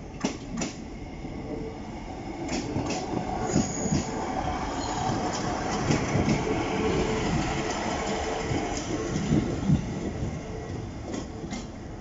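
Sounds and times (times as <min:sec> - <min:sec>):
train wheel clicks: 0:00.2 - 0:00.8, 0:02.5 - 0:04.1
high wheel squeal: 0:03.4 - 0:05.2.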